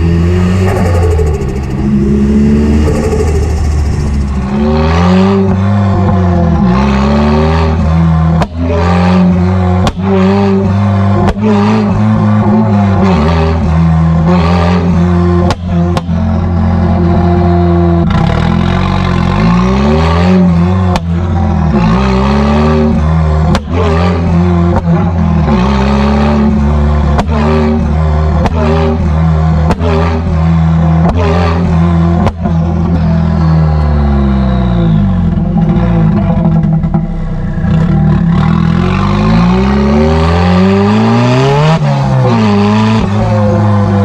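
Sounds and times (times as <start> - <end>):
exhaust cracks: 0.0 - 6.2
car engine revving: 0.0 - 44.0.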